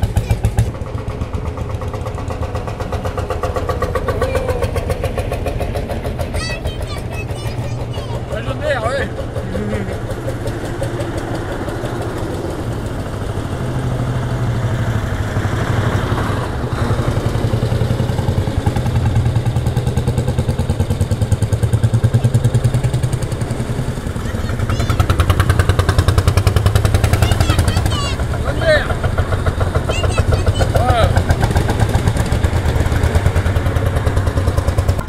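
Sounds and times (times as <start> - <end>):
tractor engines chugging: 0.0 - 35.0.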